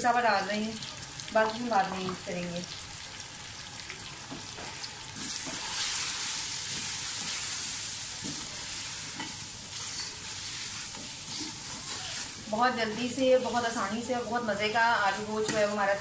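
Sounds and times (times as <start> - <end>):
meat and spices sizzling in oil: 0.0 - 16.0
wooden spoon stirring and scraping: 8.2 - 13.6.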